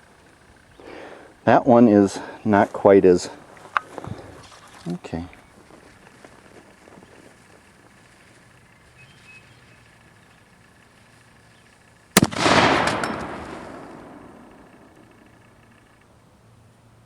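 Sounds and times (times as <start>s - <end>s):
cannon firing with rumbling echo: 12.2s - 15.6s.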